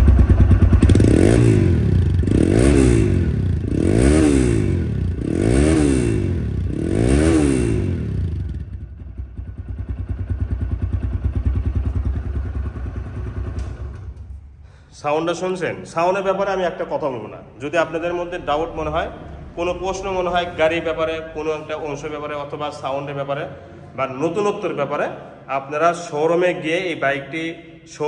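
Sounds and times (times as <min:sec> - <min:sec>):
motorcycle engine revving and idling: 0:00.0 - 0:14.6.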